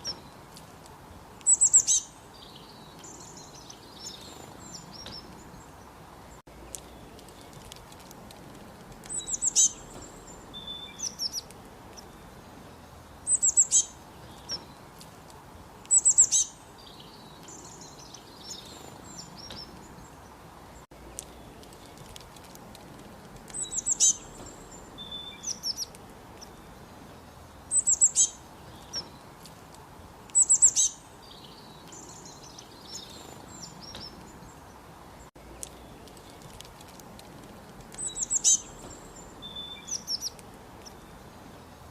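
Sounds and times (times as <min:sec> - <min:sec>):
songbirds chirping: 0:00.0 - 0:41.9
steady faint hiss: 0:00.0 - 0:41.9.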